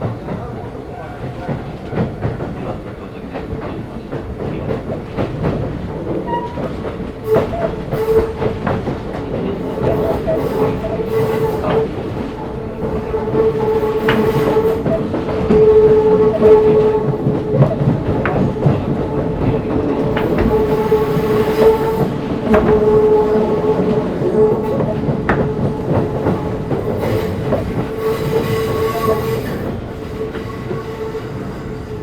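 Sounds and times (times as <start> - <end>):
train rumble: 0.0 - 32.0
train wheels clicking over rail joints: 1.2 - 32.0
train motor whine: 9.6 - 32.0.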